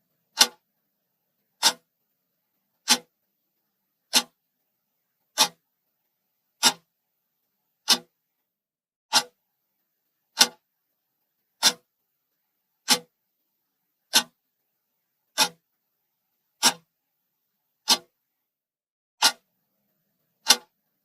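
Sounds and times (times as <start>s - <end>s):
timer ticking: 1.6s - 1.8s, 7.9s - 8.1s, 11.6s - 11.8s.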